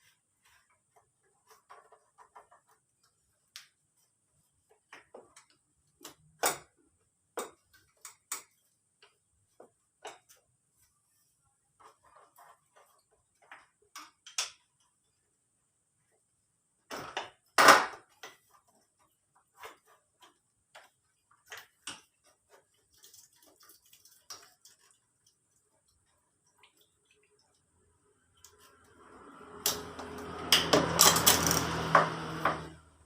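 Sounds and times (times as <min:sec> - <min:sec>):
metal tools clicking and clinking: 0:31.0 - 0:31.8.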